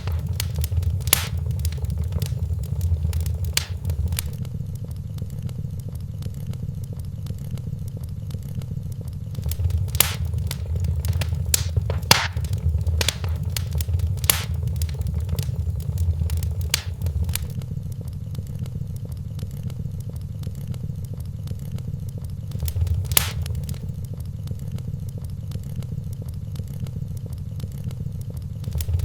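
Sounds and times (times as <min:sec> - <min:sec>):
steady low rumble: 0:00.0 - 0:04.4, 0:09.4 - 0:17.6, 0:22.5 - 0:24.0, 0:28.6 - 0:29.0
wood fire crackling: 0:00.0 - 0:04.4, 0:09.4 - 0:17.6, 0:22.5 - 0:24.1, 0:28.6 - 0:29.0.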